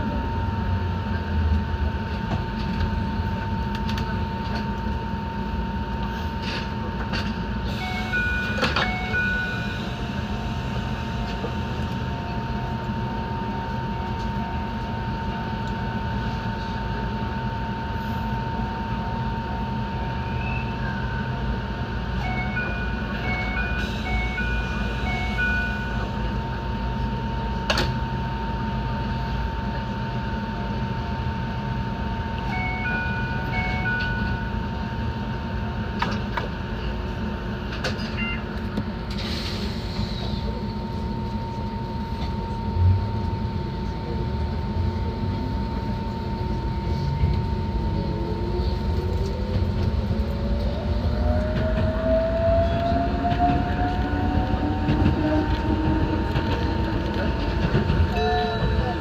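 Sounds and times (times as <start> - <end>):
train wheels rumbling on rail: 0.0 - 59.0
train motor whine: 6.0 - 14.9, 19.5 - 28.2, 37.7 - 59.0.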